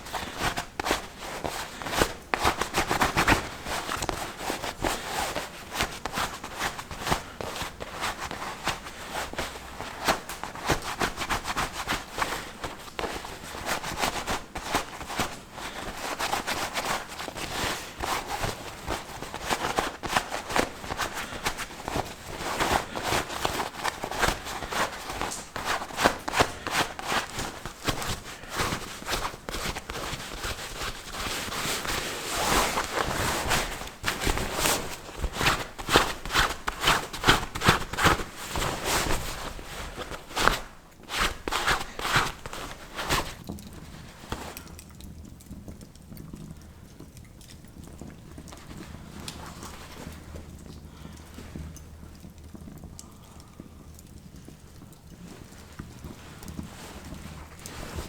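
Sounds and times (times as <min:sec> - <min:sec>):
footsteps crunching in snow: 0:00.0 - 0:43.4, 0:55.3 - 0:58.0.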